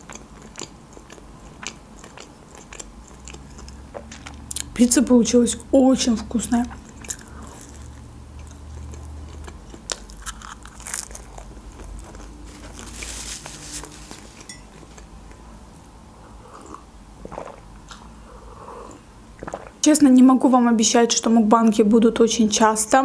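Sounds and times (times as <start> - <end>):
person chewing pizza: 0.0 - 4.8, 6.7 - 19.8
crisp crunches: 7.0 - 15.1.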